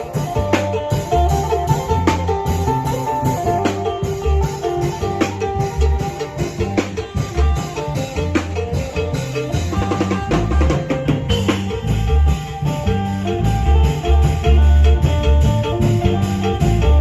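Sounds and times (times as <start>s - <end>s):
plucked lute melody: 0.0s - 11.1s
deep drum strokes: 0.0s - 17.0s.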